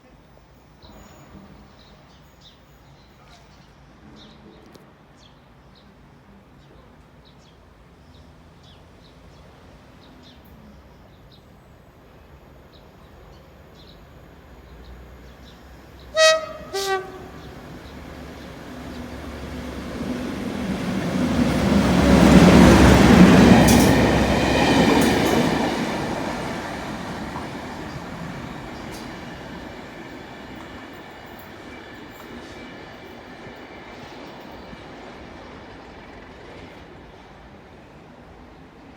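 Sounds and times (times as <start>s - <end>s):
diesel locomotive engine passing: 8.3s - 38.9s
two-tone locomotive horn: 16.0s - 18.1s.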